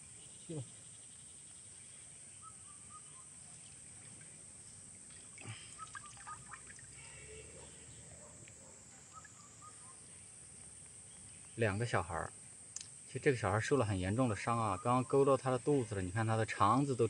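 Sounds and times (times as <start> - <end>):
small bird chirping: 0.0 - 13.1.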